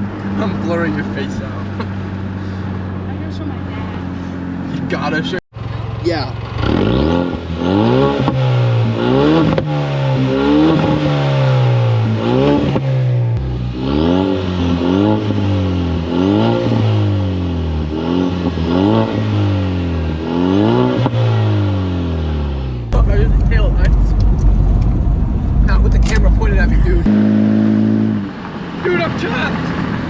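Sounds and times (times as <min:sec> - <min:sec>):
car engine revving: 0:06.4 - 0:28.4.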